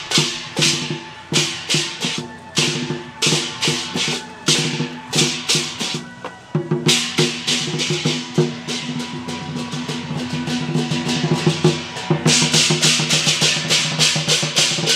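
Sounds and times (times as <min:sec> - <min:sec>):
cymbals crashing: 0:00.0 - 0:14.9
drum and wood-block strikes: 0:00.0 - 0:14.9.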